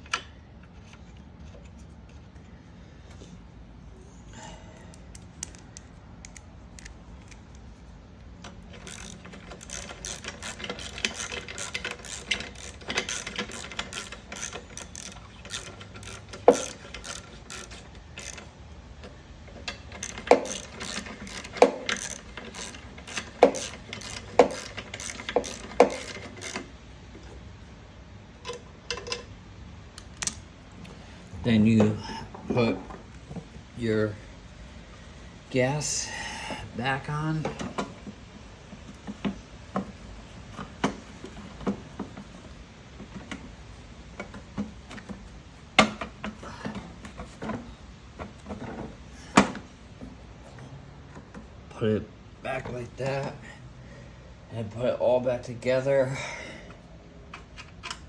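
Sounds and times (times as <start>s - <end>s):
metal parts clicking: 8.4s - 18.5s, 19.7s - 26.7s.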